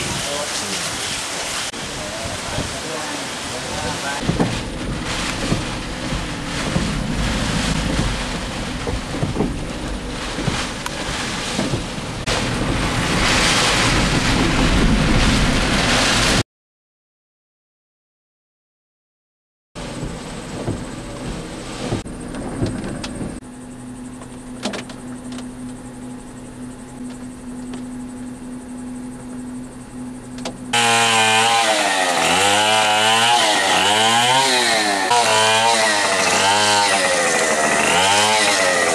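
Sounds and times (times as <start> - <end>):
wind and rain on microphone: 0.0 - 16.4, 19.8 - 23.4
steady low hum: 0.1 - 16.4, 19.8 - 30.8
chainsaw revving: 30.7 - 38.9.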